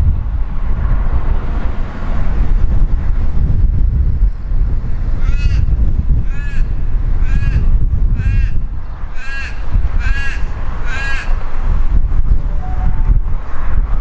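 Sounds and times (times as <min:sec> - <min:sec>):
wind rumble on microphone: 0:00.0 - 0:14.0
crow cawing: 0:09.2 - 0:11.4.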